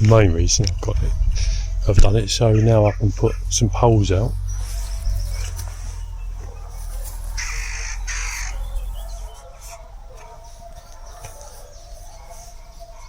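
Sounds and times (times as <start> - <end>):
low rumble: 0.0 - 10.2
crow cawing: 4.4 - 10.3.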